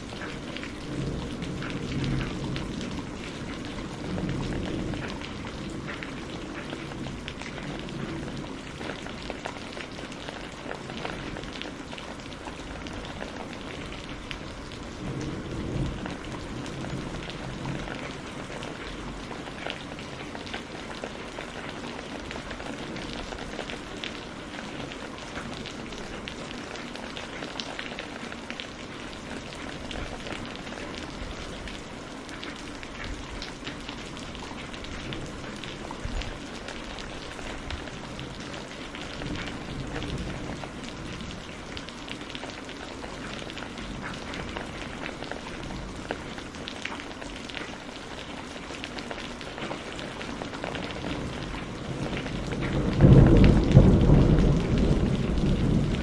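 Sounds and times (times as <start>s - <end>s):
rain drops pattering: 0.0s - 56.0s
distant thunder rumble: 12.5s - 19.3s, 50.9s - 56.0s.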